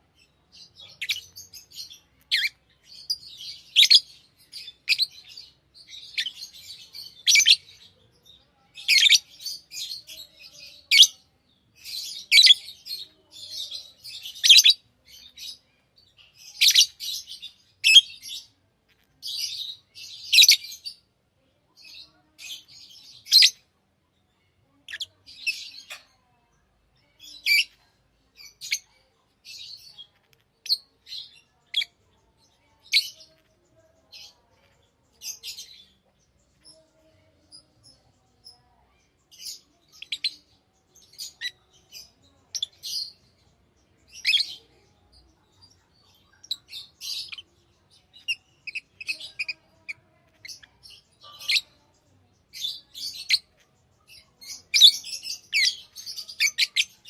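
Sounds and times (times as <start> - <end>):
lovebirds chirping: 0.0 - 57.0.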